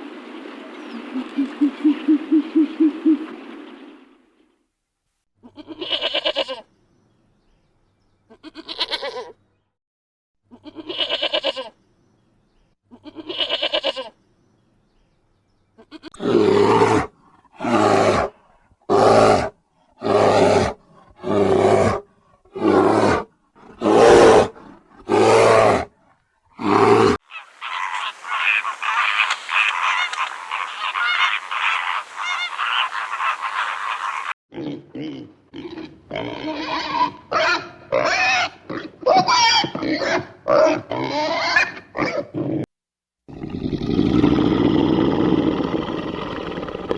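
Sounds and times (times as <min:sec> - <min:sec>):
animal calls: 0:00.0 - 0:04.0, 0:27.2 - 0:34.4.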